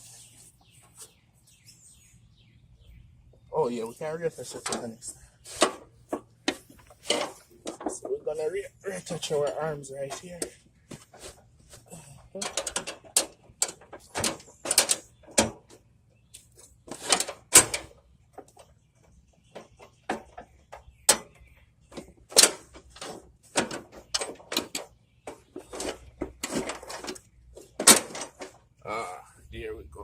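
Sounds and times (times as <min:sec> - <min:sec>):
metallic clicks knocks and scrapes: 0:04.5 - 0:08.2, 0:12.4 - 0:18.8, 0:19.5 - 0:28.6.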